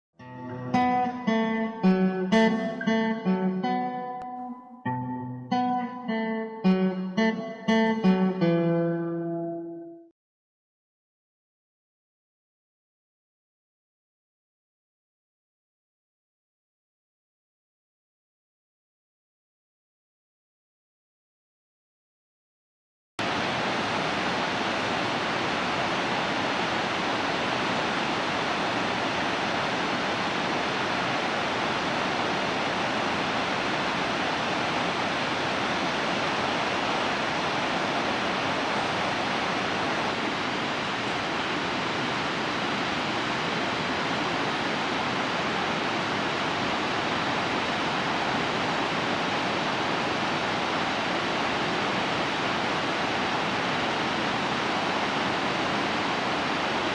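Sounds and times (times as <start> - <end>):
waterfall rushing: 23.2 - 56.9.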